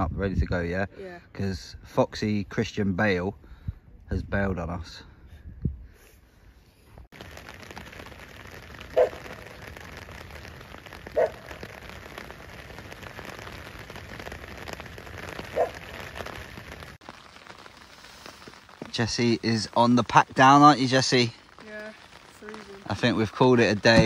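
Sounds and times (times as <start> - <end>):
rain falling on water: 7.1 - 24.0.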